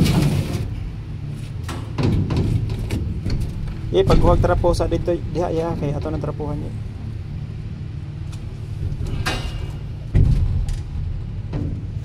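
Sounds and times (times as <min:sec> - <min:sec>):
low mechanical hum: 0:00.0 - 0:12.0
heavy thud: 0:01.9 - 0:05.9, 0:09.1 - 0:12.0.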